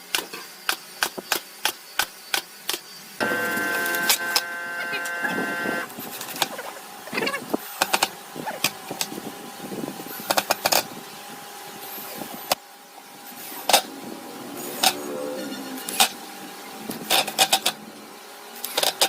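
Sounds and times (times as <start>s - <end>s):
faint steady hum: 3.2s - 7.5s.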